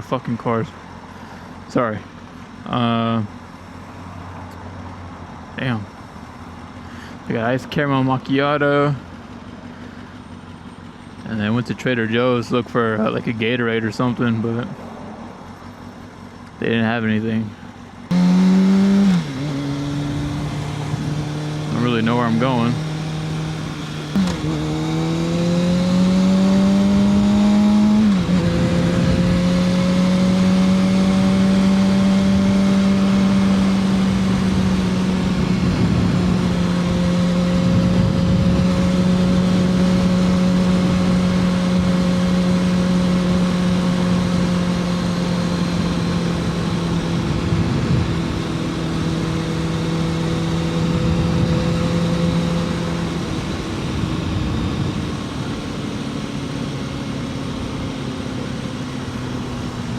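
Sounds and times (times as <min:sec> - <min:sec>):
motorcycle engine revving: 0:17.6 - 0:59.9.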